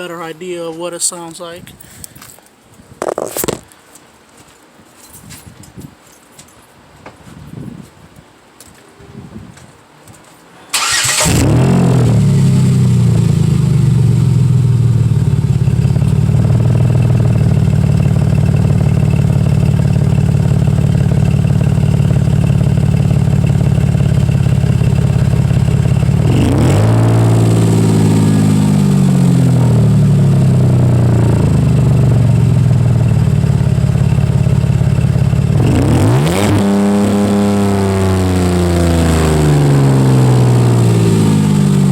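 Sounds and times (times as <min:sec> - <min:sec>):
car engine cranking and starting: 0:10.7 - 0:38.2
car engine idling: 0:10.8 - 0:36.2, 0:37.3 - 0:41.9
engine revving: 0:10.8 - 0:41.9.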